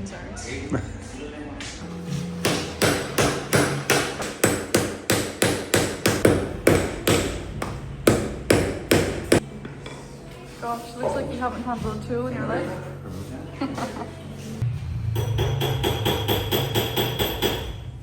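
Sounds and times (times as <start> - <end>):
hammer striking metal ring: 15.1 - 18.0.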